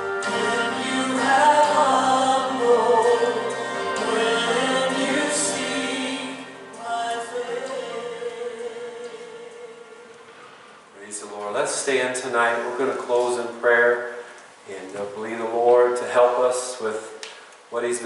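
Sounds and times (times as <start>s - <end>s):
choir singing with accompaniment: 0.0s - 10.4s.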